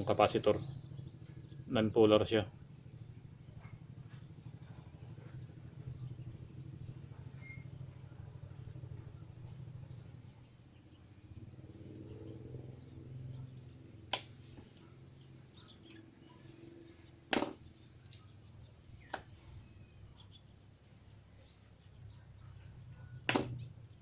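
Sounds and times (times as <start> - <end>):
faint low hum: 0.0 - 24.0
sharp clicks: 19.1 - 19.3, 23.2 - 23.6.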